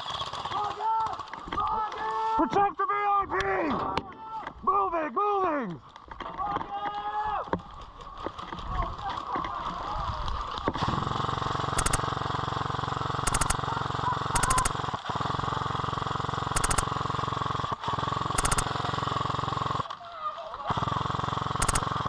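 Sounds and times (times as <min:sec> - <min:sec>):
airsoft machine gun firing: 0:11.7 - 0:12.3, 0:13.2 - 0:14.9, 0:16.5 - 0:17.3, 0:18.2 - 0:19.8, 0:21.4 - 0:22.0.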